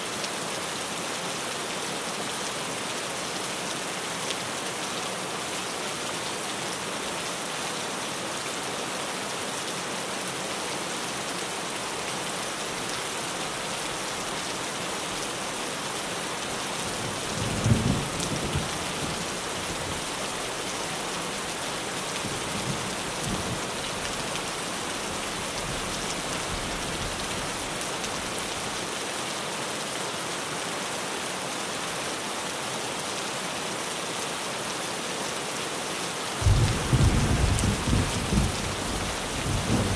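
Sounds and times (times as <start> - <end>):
heavy rain on a tin roof: 0.0 - 39.9
thunder rumbling: 36.4 - 39.9.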